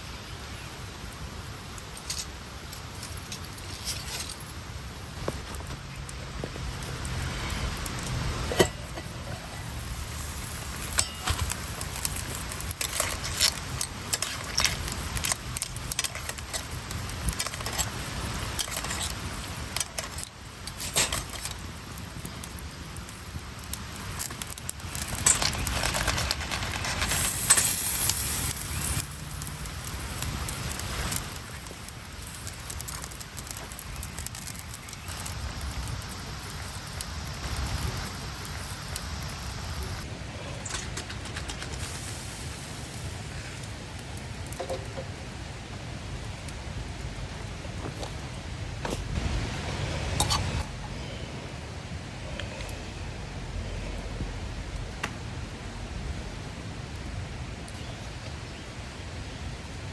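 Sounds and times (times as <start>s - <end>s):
campfire crackling and popping: 0.6s - 40.1s, 40.7s - 50.9s
hiss: 20.4s - 40.1s, 41.7s - 44.0s.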